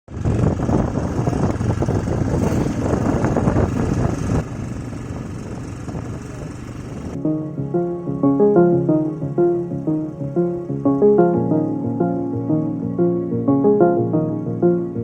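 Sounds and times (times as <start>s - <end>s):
motorcycle engine running: 0.1s - 7.2s.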